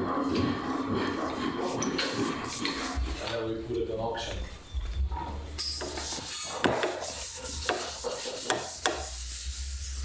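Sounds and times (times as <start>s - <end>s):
wood being scraped and rubbed: 0.0s - 3.4s, 5.8s - 10.0s.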